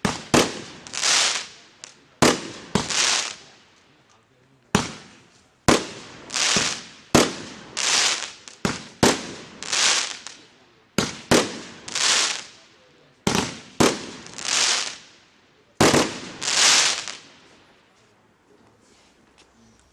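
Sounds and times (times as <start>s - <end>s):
firework hissing bursts: 5.7s - 10.4s, 15.8s - 17.2s.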